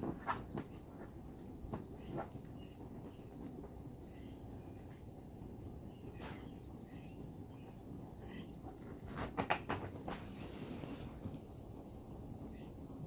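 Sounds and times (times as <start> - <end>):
distant bird chirps: 0.4 - 8.8
rustling knocks: 9.1 - 10.4.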